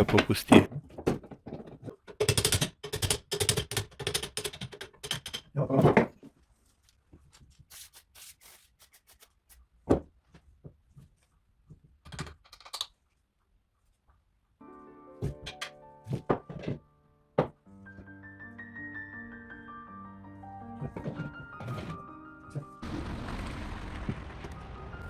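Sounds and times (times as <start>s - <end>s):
sewing machine clattering: 2.0s - 5.5s
clicks and knocks: 15.2s - 16.8s.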